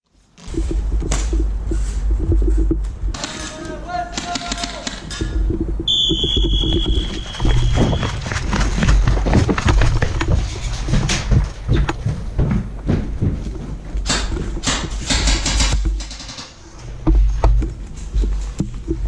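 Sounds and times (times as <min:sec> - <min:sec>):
constant low rumble: 0:00.2 - 0:19.0
high whistle-like tone: 0:05.9 - 0:08.0
knocks and clicks of gear: 0:14.0 - 0:19.0.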